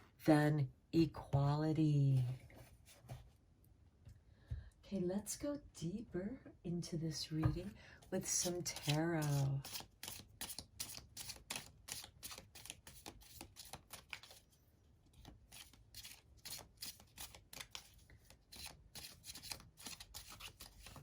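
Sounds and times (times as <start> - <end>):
cards being shuffled: 8.4 - 14.5, 15.2 - 21.0.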